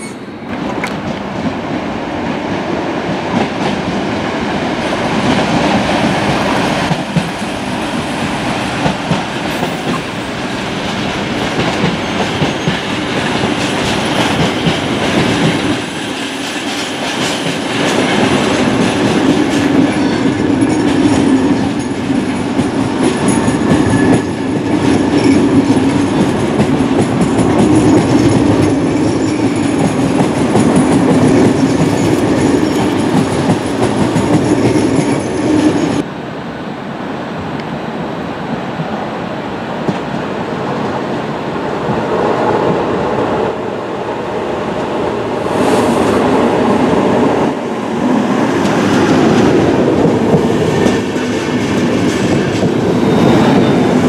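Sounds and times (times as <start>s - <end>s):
train wheels clickety-clack: 3.0s - 4.1s, 4.7s - 36.1s, 39.8s - 40.9s, 45.4s - 54.0s.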